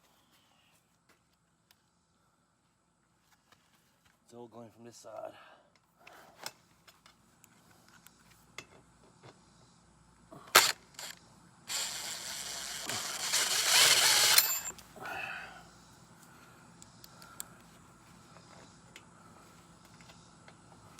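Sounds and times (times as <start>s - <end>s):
harsh mechanical whirring: 10.5s - 14.7s.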